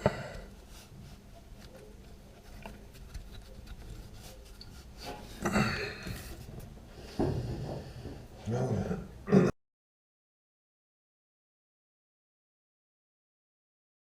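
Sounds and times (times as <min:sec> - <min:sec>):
hand tools clicking and rubbing: 0:01.5 - 0:05.4.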